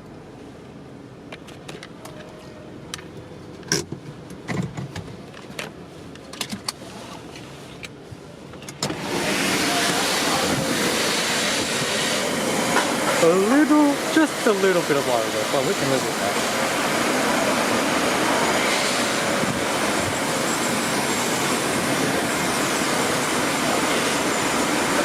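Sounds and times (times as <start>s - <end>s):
loud steady rushing noise: 8.8s - 25.0s.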